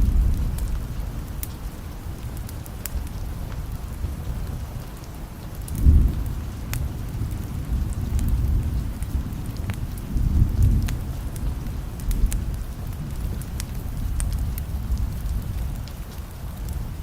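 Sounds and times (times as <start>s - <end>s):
distant thunder rumble: 0.0s - 2.3s, 5.8s - 16.0s
sharp crackles: 0.0s - 17.0s
steady rain: 0.0s - 17.0s.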